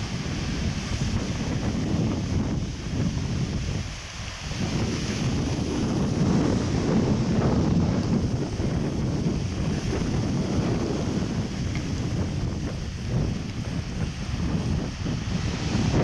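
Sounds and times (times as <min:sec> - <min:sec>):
sea surf: 0:00.0 - 0:16.0
wind buffeting microphone: 0:00.0 - 0:16.0.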